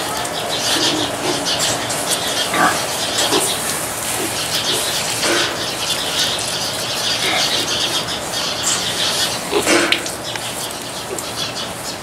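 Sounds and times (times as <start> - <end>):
pigs grunting: 0.6 - 5.8, 7.1 - 8.2, 9.1 - 10.1.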